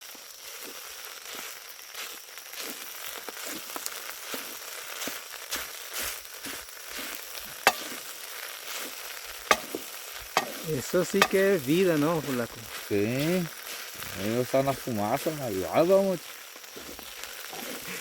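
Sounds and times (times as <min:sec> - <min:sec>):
campfire cooking sizzling: 0:00.0 - 0:18.0
sharp pops: 0:07.4 - 0:08.2, 0:08.8 - 0:18.0.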